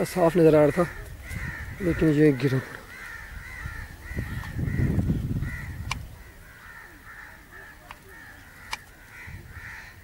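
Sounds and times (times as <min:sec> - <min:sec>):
birds calling: 0:00.0 - 0:10.0
sharp clicks: 0:05.8 - 0:06.1, 0:08.6 - 0:09.0.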